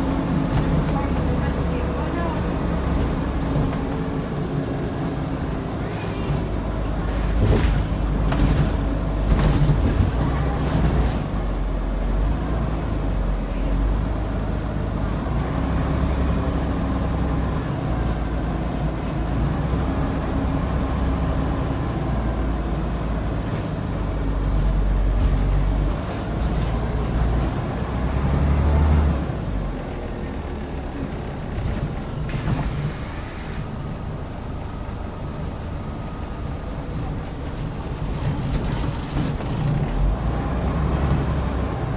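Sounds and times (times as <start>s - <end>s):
bus diesel engine accelerating: 0.0s - 41.9s
air hiss: 32.3s - 33.6s.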